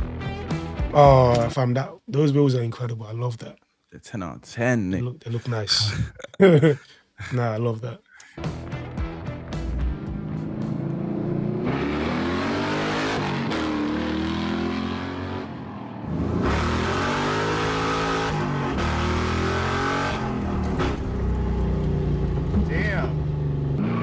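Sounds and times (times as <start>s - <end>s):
car engine revving: 8.4s - 24.0s.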